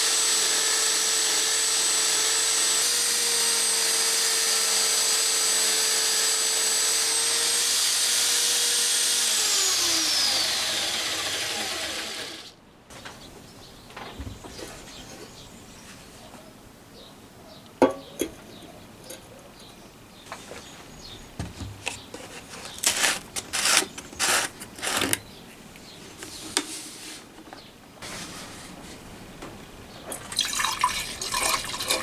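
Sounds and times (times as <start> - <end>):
sharp knock on metal: 17.8 - 18.2
metal scraping strokes: 22.1 - 25.2.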